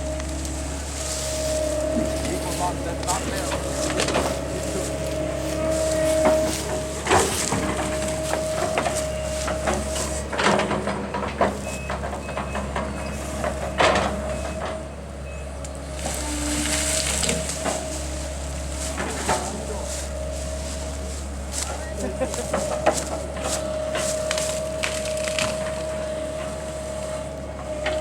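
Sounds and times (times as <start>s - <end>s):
heavy machine engine running: 0.0s - 28.0s
wood cracking and crashing: 22.2s - 26.4s.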